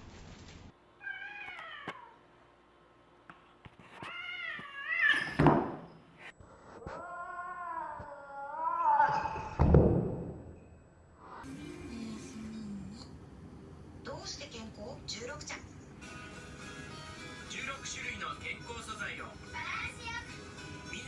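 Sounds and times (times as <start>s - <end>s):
cat meowing: 1.0s - 2.2s, 4.0s - 5.4s, 6.9s - 9.6s.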